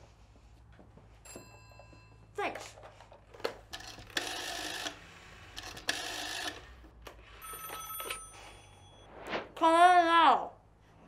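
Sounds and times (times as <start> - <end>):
rotary dial whirring: 3.6 - 8.0.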